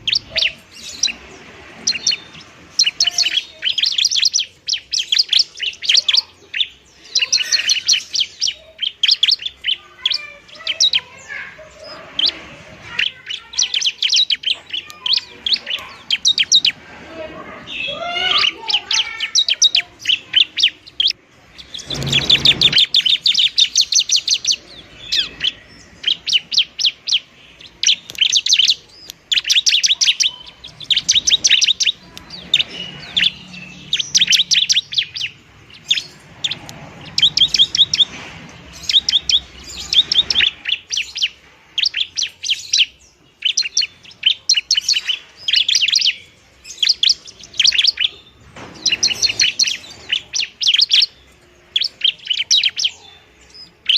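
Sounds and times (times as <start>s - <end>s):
bird rattling chirps: 0.0s - 16.8s, 17.7s - 52.9s.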